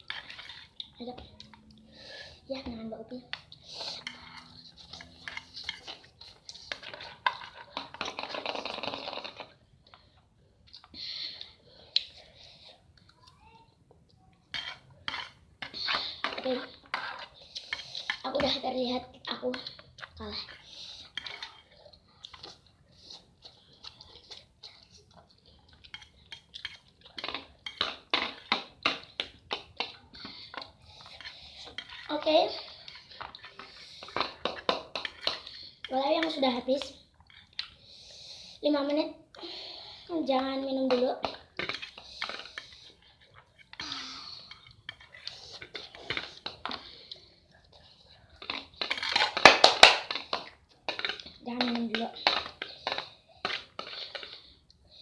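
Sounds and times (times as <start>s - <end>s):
cutlery clinking and scraping on plate: 0.1s - 1.8s, 3.3s - 9.5s, 14.5s - 18.6s, 25.8s - 35.6s, 48.4s - 54.4s.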